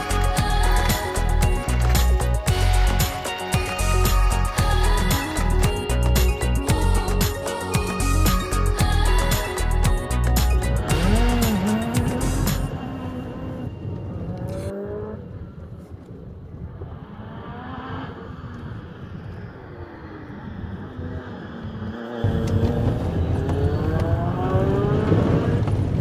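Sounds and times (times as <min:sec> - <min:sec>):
road noise: 0:00.0 - 0:26.0
car engine accelerating: 0:10.7 - 0:15.5, 0:16.7 - 0:26.0.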